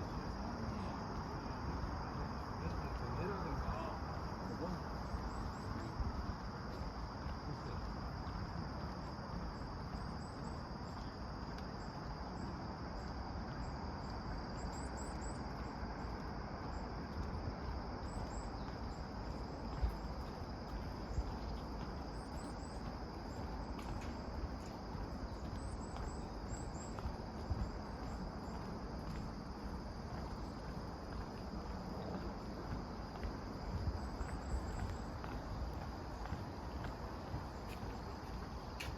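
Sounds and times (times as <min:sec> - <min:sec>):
insects trilling: 0:00.0 - 0:38.9
low rush of wind: 0:00.0 - 0:38.9.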